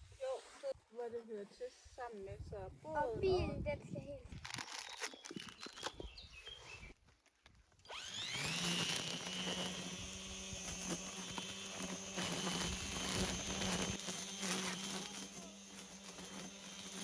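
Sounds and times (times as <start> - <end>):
grass trimmer whining: 7.8 - 17.0.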